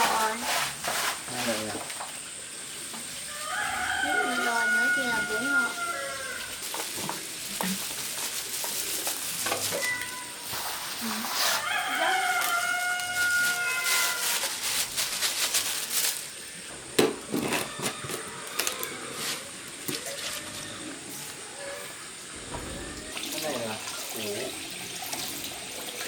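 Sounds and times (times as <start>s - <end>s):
rooster crowing: 3.3s - 6.6s, 11.3s - 14.8s, 17.3s - 23.7s.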